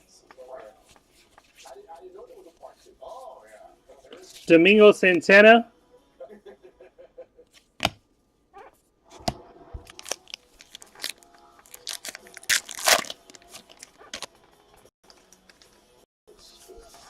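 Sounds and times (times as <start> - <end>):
wrapper tearing: 9.9 - 14.3.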